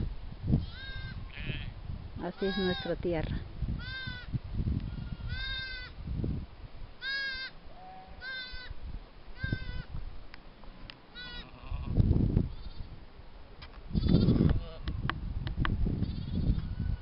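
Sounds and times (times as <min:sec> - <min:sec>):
young farm animal bleating: 0:00.6 - 0:03.2, 0:03.8 - 0:06.0, 0:07.0 - 0:08.8, 0:09.4 - 0:09.9, 0:11.1 - 0:12.9, 0:13.9 - 0:15.0, 0:16.0 - 0:17.0.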